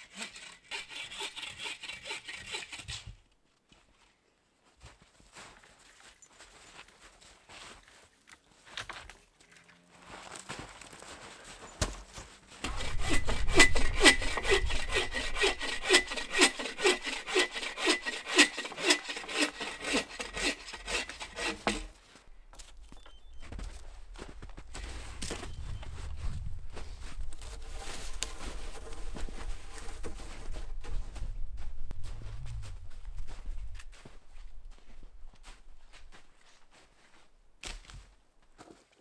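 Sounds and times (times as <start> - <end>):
hand saw cutting wood: 0.0 - 3.2, 12.6 - 22.0, 27.7 - 30.5.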